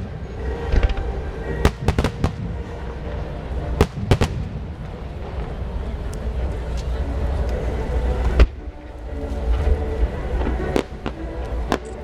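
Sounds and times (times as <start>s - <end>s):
fireworks bangs: 0.0s - 6.2s, 10.4s - 12.0s
distant fireworks rumble: 0.0s - 12.0s.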